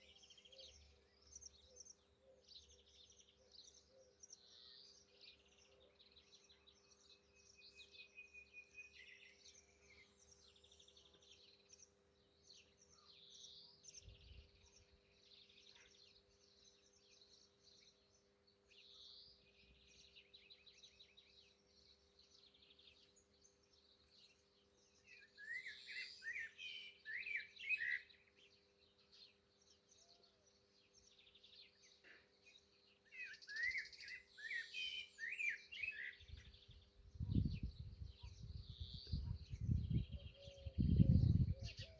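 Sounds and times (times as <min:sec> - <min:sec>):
nightingale singing: 0:25.0 - 0:28.4, 0:33.0 - 0:41.9.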